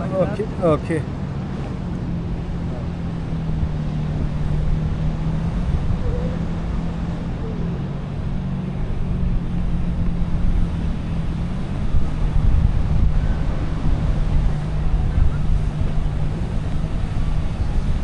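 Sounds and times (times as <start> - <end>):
wind rushing over microphone: 0.0 - 7.4.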